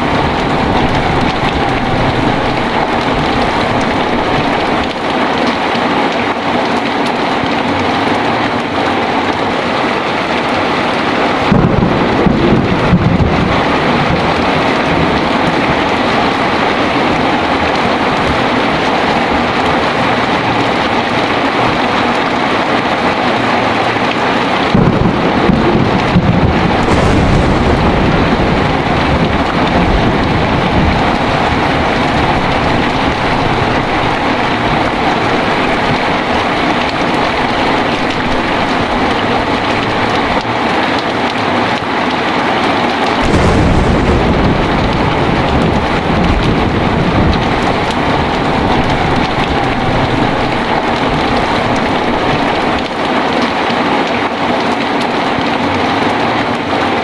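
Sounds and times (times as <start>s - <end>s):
thunder rumbling: 0.0s - 6.4s, 9.3s - 54.1s
heavy rain: 0.0s - 57.0s.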